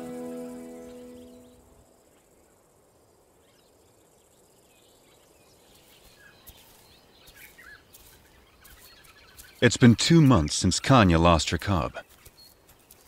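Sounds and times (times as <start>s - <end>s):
outdoor bush ambience: 0.0s - 13.0s
distant bird chirps: 3.4s - 13.0s.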